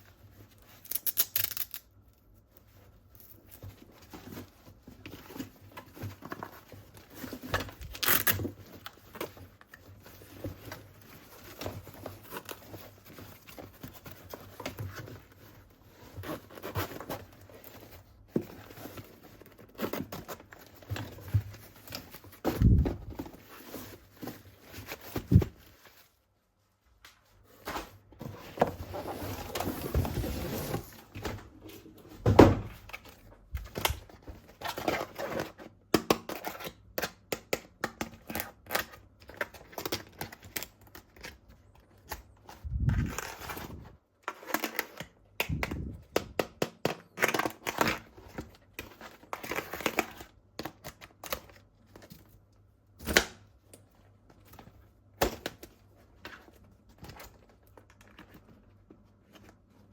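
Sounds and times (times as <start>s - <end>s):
plastic packaging rustling: 0.0s - 26.4s.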